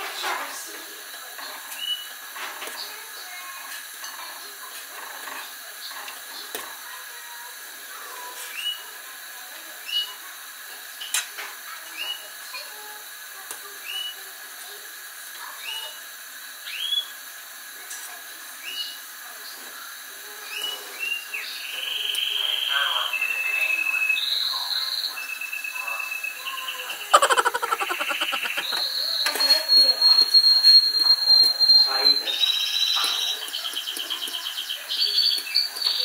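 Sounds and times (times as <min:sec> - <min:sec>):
steady background hum: 0:25.2 - 0:35.5
bird chirping: 0:26.9 - 0:30.8.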